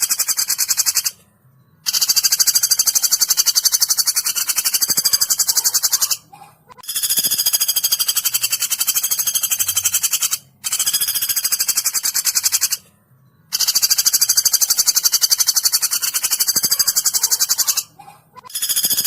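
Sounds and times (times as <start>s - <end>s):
woodpecker rattling trills: 0.0s - 12.8s, 13.5s - 19.0s.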